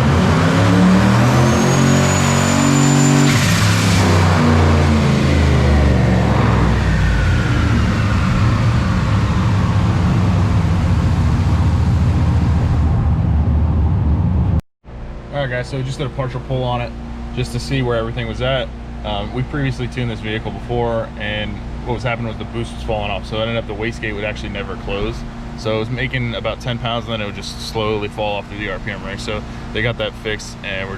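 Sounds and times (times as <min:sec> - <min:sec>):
car engine revving: 0:00.0 - 0:14.6
turbo whistle: 0:01.0 - 0:04.5.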